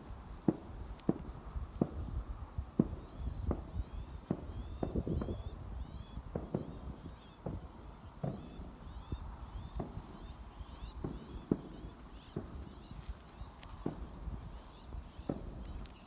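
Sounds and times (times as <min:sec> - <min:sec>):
footsteps walking: 0:00.4 - 0:02.0, 0:11.0 - 0:14.7
songbird chirping: 0:02.8 - 0:16.0.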